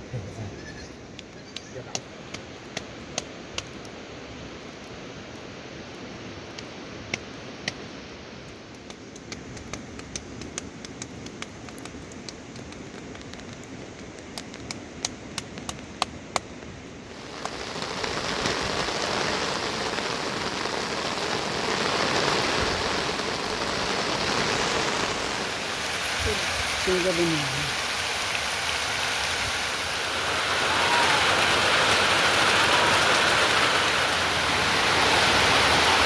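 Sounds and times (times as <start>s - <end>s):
rain falling: 17.0s - 36.0s.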